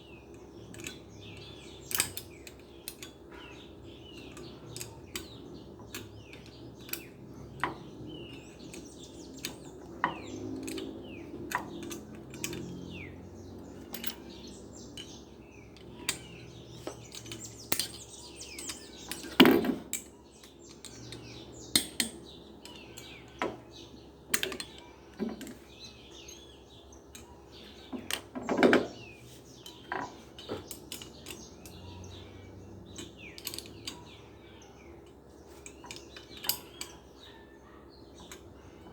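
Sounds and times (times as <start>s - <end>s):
birds chirping faintly: 0.0s - 38.9s
metal parts and tools clinking: 0.3s - 38.9s.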